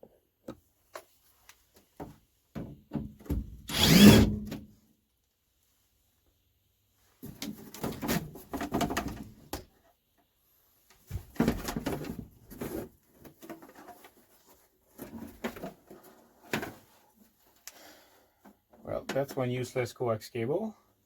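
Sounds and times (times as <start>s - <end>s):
parts knocking and scraping: 3.7s - 4.5s.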